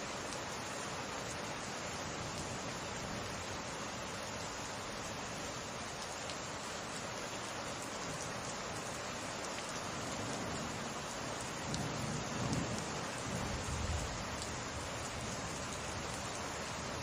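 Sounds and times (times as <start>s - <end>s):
steady rain falling: 0.0s - 17.0s
low rumble of thunder: 11.6s - 15.4s.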